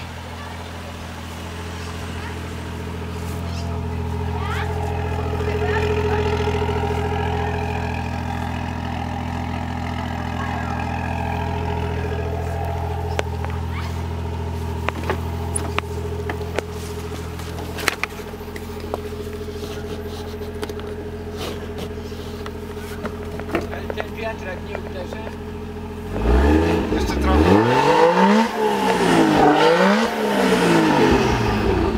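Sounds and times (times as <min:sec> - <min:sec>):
car engine idling: 0:00.0 - 0:31.9.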